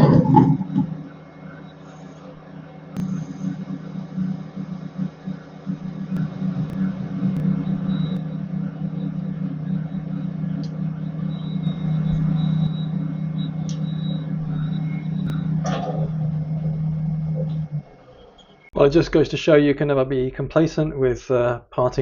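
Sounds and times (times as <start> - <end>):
lathe running with steady hum: 0.0 - 18.8
faint high whine: 0.0 - 19.6.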